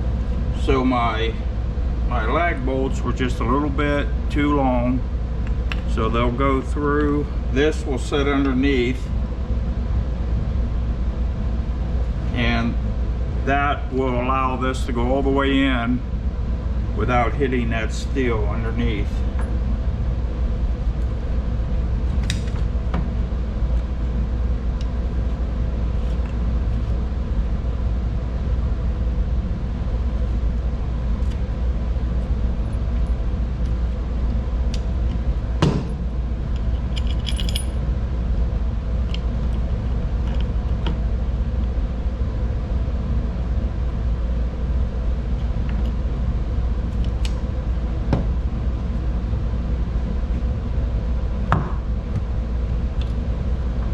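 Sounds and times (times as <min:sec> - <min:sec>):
steady low hum: 0:00.0 - 0:53.9
metal tools clinking and knocking: 0:36.9 - 0:37.8.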